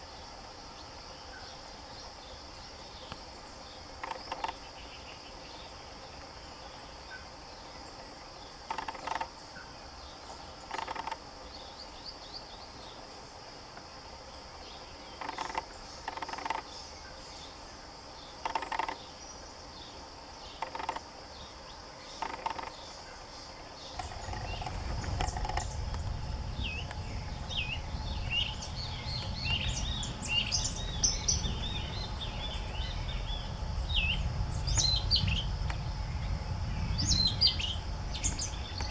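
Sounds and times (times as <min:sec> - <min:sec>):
high insect buzz: 0:19.8 - 0:38.9
small birds chirping rapidly: 0:23.8 - 0:38.9
low rumble: 0:24.0 - 0:38.9.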